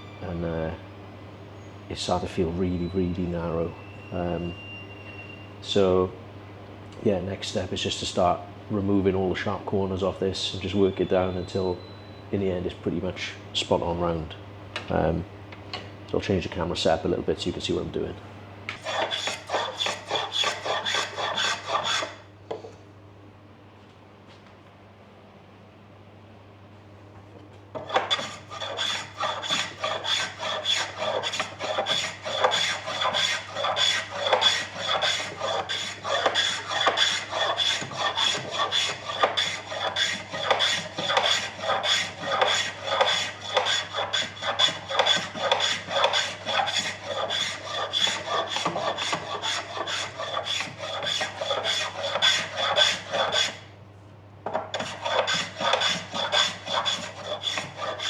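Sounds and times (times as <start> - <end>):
hand plane shaving wood: 18.8 - 22.1, 27.8 - 53.6, 54.8 - 58.0.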